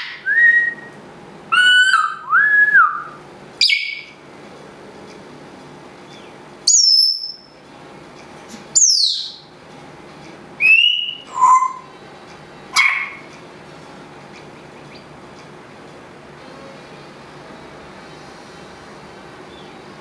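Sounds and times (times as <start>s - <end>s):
parrot whistling: 0.0s - 4.1s, 6.7s - 7.5s, 8.8s - 9.5s, 10.6s - 11.9s, 12.8s - 13.3s.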